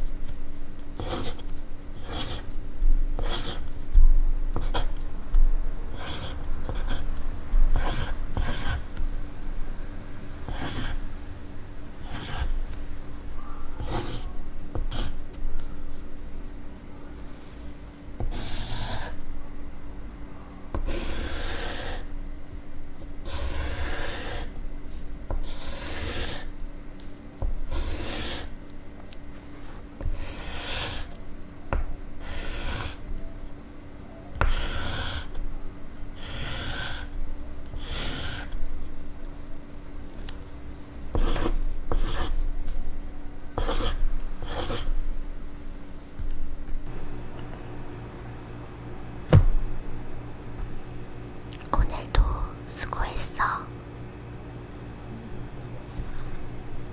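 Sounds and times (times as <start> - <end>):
pencil scratching on paper: 1.0 - 2.6, 3.2 - 3.9, 4.6 - 5.0, 5.9 - 7.1, 7.8 - 8.8, 10.5 - 11.0, 12.0 - 12.6, 13.8 - 15.2, 18.2 - 19.2, 20.8 - 22.1, 23.2 - 24.5, 25.3 - 26.5, 27.7 - 28.5, 30.0 - 31.2, 32.2 - 33.1, 34.4 - 35.4, 36.2 - 37.2, 37.8 - 38.6, 41.1 - 42.5, 43.6 - 44.9.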